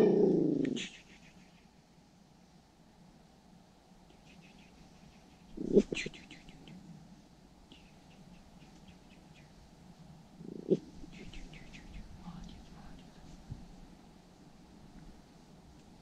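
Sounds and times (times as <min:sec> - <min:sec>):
small bird chattering: 0:00.0 - 0:01.7, 0:04.0 - 0:06.8, 0:07.7 - 0:09.6, 0:10.4 - 0:13.2.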